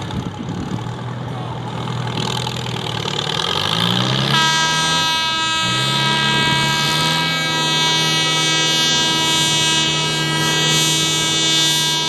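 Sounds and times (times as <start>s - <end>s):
tractor engine revving: 0.0s - 12.0s
high-pitched whine: 4.2s - 12.0s.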